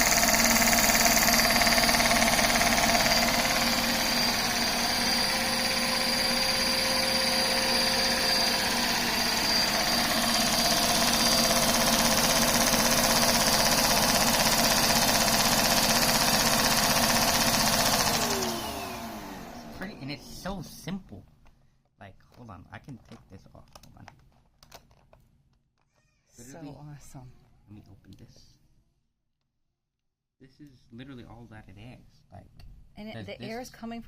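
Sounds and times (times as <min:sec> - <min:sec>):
small engine clattering rhythmically: 0:00.0 - 0:19.1
vacuum cleaner motor whine: 0:00.0 - 0:20.8.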